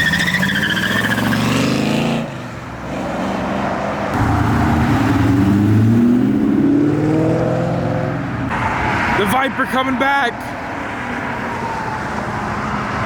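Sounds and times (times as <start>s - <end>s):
car engine revving: 4.1s - 9.2s.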